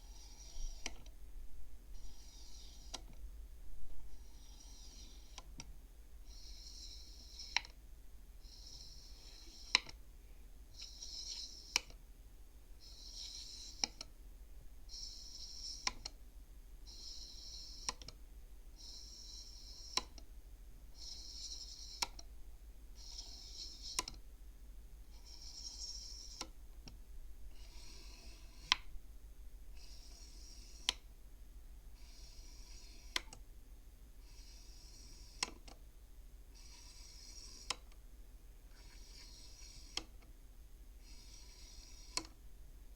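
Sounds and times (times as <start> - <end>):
wooden abacus beads sliding and clicking: 0.0 - 1.2, 2.0 - 3.2, 4.1 - 5.7, 6.3 - 7.8, 8.4 - 10.0, 10.8 - 12.0, 12.8 - 14.1, 14.9 - 16.2, 16.9 - 18.2, 18.8 - 20.3, 21.0 - 22.3, 23.0 - 24.3, 25.0 - 29.0, 29.7 - 31.1, 32.0 - 33.5, 34.2 - 35.9, 36.5 - 38.0, 38.7 - 40.3, 41.0 - 42.4.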